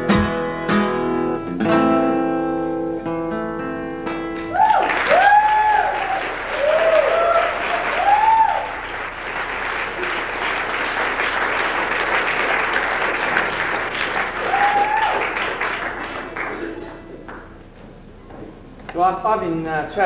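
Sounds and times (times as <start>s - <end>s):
audience applauding: 4.1s - 17.5s.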